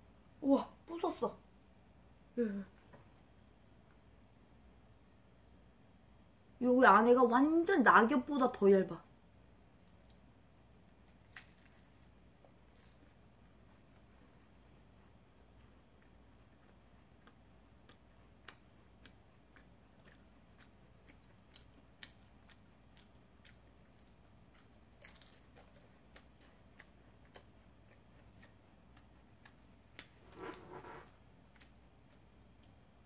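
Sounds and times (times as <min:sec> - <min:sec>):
chewing crisp pastry: 0:09.8 - 0:33.0.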